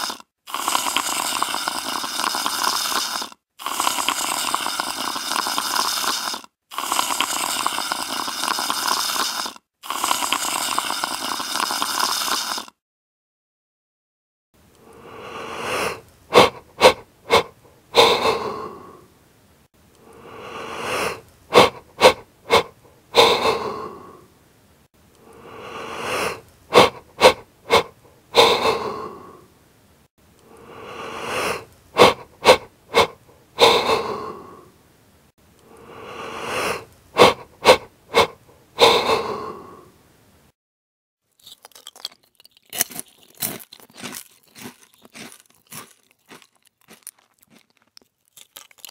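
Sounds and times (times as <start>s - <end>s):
breathy wheezing mouth noise: 0.0s - 12.8s, 14.8s - 19.1s, 20.0s - 24.3s, 25.2s - 29.5s, 30.4s - 34.8s, 35.6s - 40.0s.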